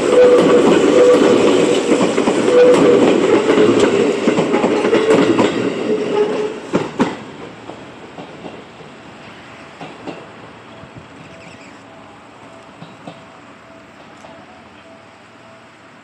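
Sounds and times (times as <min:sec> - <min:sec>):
electric train wheels clattering: 0:00.0 - 0:15.7.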